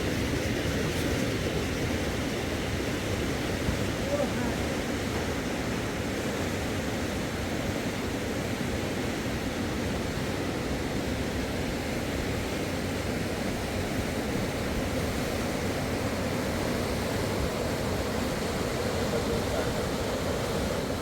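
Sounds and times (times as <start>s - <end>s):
river rushing: 14.2s - 21.0s.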